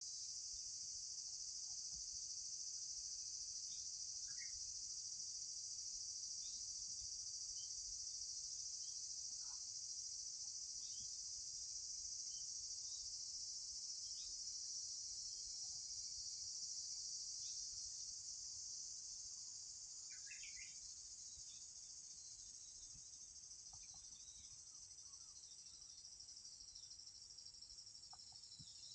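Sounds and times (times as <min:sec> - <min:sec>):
insects trilling: 0:00.0 - 0:28.9
faint bird chirps: 0:03.7 - 0:04.7, 0:06.3 - 0:06.8, 0:08.8 - 0:09.8, 0:10.4 - 0:11.3, 0:14.0 - 0:14.5, 0:19.3 - 0:28.9.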